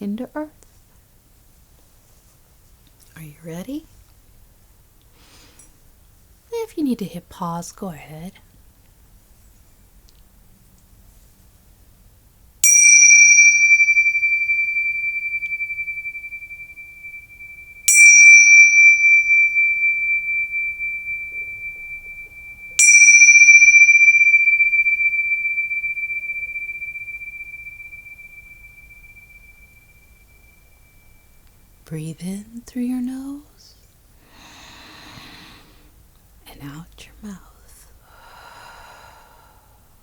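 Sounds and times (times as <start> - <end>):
meditation bell ringing: 12.6 - 31.8.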